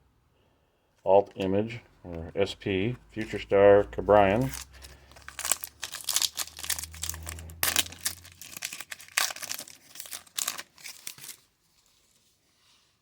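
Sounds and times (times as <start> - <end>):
foil wrapper crinkling: 4.3 - 11.5.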